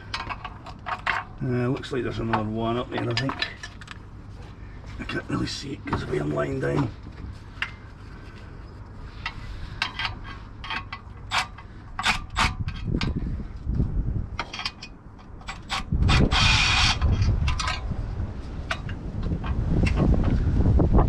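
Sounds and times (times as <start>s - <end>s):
tools and metal parts clicking: 0.0s - 1.4s, 2.2s - 4.0s, 9.2s - 13.2s, 14.4s - 17.9s
rasping metal scrape: 15.4s - 17.8s.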